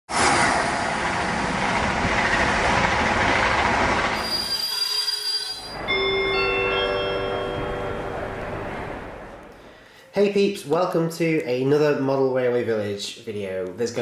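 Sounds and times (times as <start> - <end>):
train passing at speed: 0.1 - 10.0
bright held chime notes: 5.7 - 9.1.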